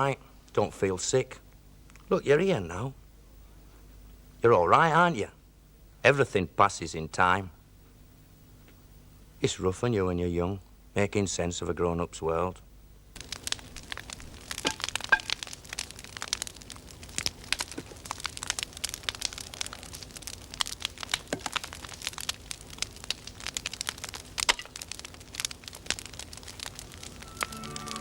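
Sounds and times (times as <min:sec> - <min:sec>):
fire crackling: 0:12.8 - 0:28.0.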